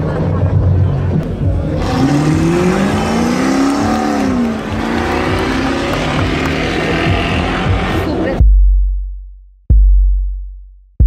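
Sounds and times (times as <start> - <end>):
car engine revving past: 1.7 - 8.4.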